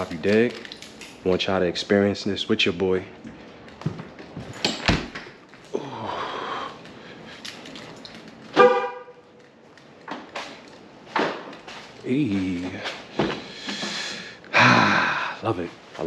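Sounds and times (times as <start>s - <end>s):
car horn beep: 8.6s - 9.3s.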